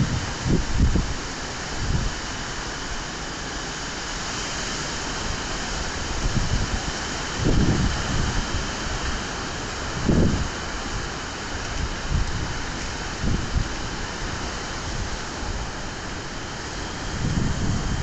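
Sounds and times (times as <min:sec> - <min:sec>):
strong wind rushing: 0:00.0 - 0:02.2, 0:06.0 - 0:09.1, 0:09.9 - 0:10.6, 0:11.6 - 0:18.0
wind buffeting microphone: 0:00.0 - 0:02.4, 0:06.0 - 0:18.0.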